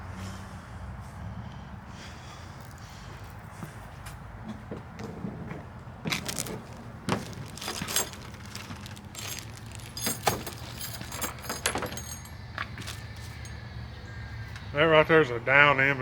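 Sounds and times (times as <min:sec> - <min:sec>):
small hard parts clinking: 0:06.1 - 0:13.7.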